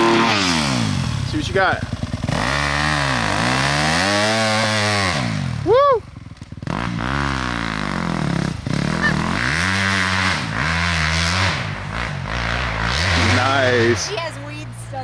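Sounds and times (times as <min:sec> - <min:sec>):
dirt bike engine revving: 0:00.0 - 0:15.0
loud whoop: 0:05.6 - 0:06.1.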